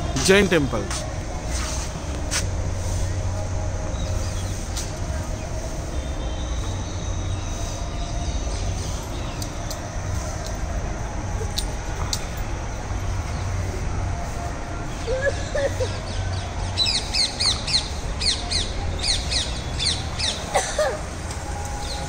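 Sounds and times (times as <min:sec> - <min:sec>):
birds chirping: 0:12.2 - 0:22.0.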